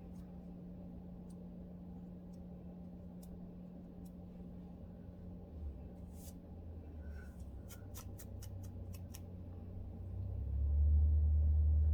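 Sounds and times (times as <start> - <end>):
low steady hum: 0.0 - 11.9
comb scratching scalp: 7.4 - 9.3.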